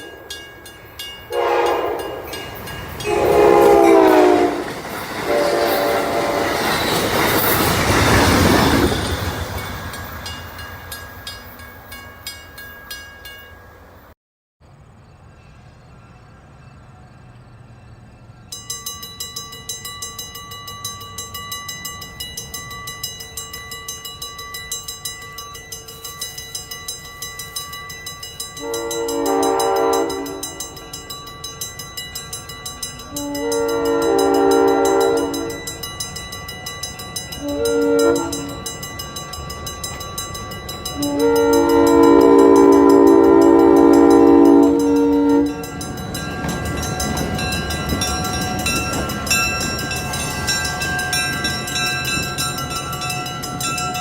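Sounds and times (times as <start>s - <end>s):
crossing bell ringing: 0.0s - 14.2s, 17.8s - 54.0s
train rumbling: 0.0s - 54.0s
locomotive horn blasts: 1.3s - 6.6s, 28.6s - 30.7s, 33.1s - 35.6s, 37.4s - 38.6s, 41.0s - 45.7s.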